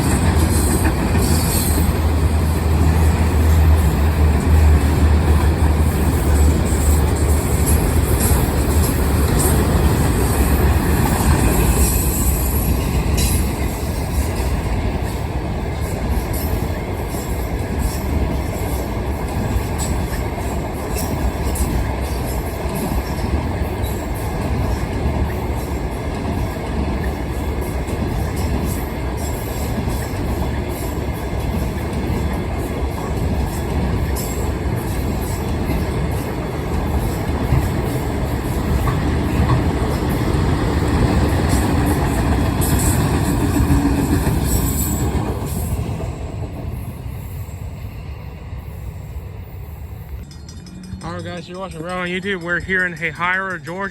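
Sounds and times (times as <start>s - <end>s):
high wheel squeal: 0.0s - 4.0s
wheels clicking over rail joints: 0.0s - 46.2s
freight train rumbling past: 0.0s - 53.9s.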